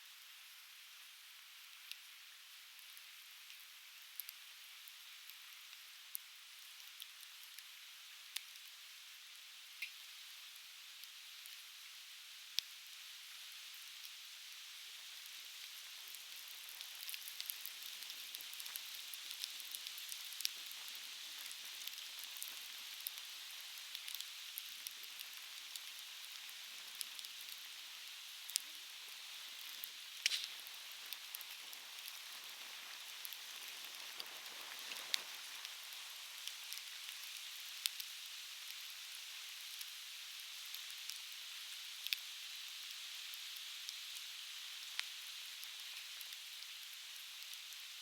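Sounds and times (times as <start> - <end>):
firewood crackling and popping: 15.6 - 42.4.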